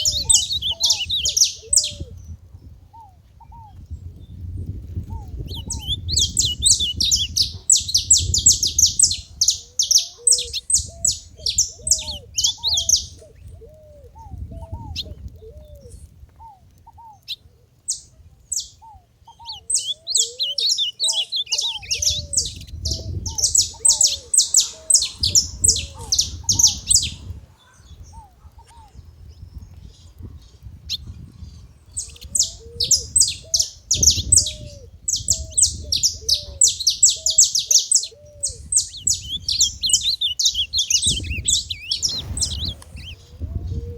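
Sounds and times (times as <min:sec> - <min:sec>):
finches chattering high chirps: 0:00.0 - 0:02.0, 0:05.3 - 0:13.2, 0:19.4 - 0:27.2, 0:31.9 - 0:43.3
short lower bird notes: 0:39.2 - 0:43.8.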